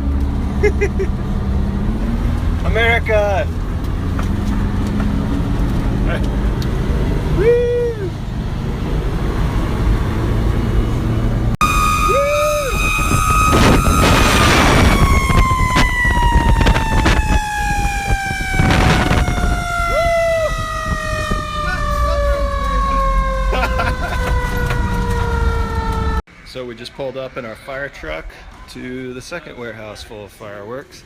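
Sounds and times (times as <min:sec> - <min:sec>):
truck engine rumble: 0:00.0 - 0:26.2
person whooping: 0:07.3 - 0:08.2, 0:11.9 - 0:12.9, 0:19.8 - 0:20.6
fire truck siren wailing: 0:10.3 - 0:26.2
bursts of rushing noise: 0:11.6 - 0:19.7.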